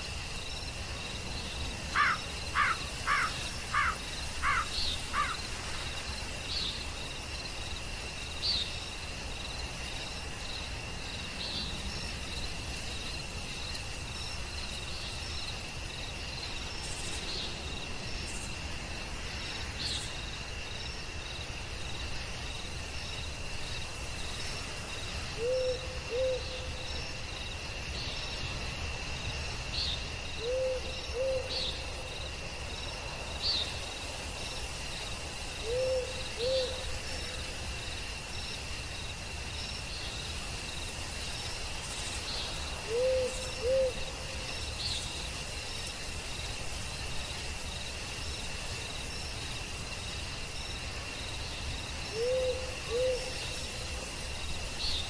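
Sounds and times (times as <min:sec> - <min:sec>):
high insect drone: 0:00.0 - 0:55.0
falling bird calls: 0:01.9 - 0:05.8
owl hooting: 0:02.0 - 0:05.4, 0:25.4 - 0:26.7, 0:30.4 - 0:31.6, 0:35.6 - 0:36.8, 0:42.8 - 0:44.0, 0:52.1 - 0:53.3.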